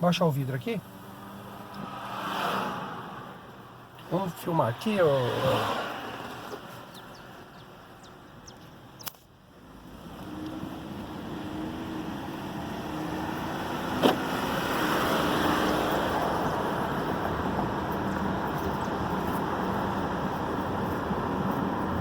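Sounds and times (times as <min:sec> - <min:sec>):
tyre and road noise: 0:00.0 - 0:22.0
sharp click: 0:09.0 - 0:09.3.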